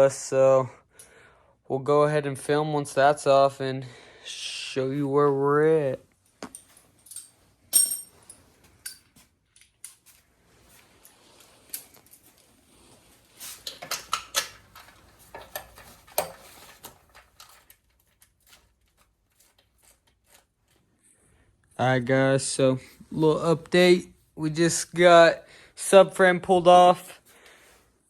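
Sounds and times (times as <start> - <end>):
metallic clinks of tools and bolts: 6.4 - 10.0.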